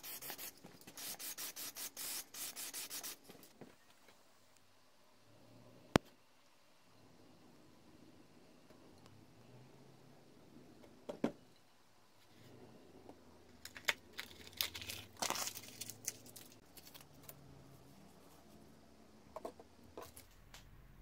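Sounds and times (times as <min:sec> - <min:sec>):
rustling and crinkling: 0:13.5 - 0:18.5.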